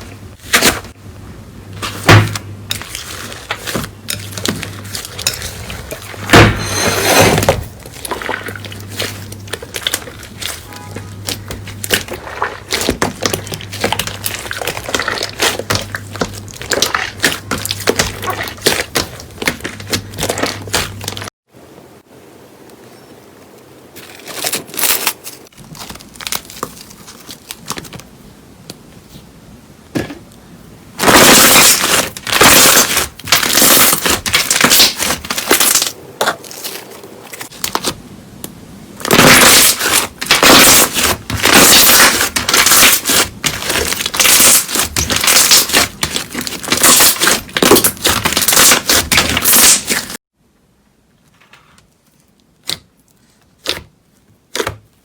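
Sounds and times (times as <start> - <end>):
slime crackling and popping: 7.8 - 21.3, 31.0 - 36.8, 39.0 - 50.2.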